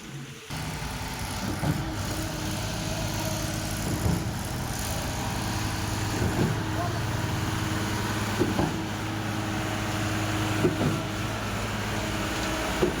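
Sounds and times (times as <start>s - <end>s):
concrete pump diesel engine running: 0.0s - 13.0s.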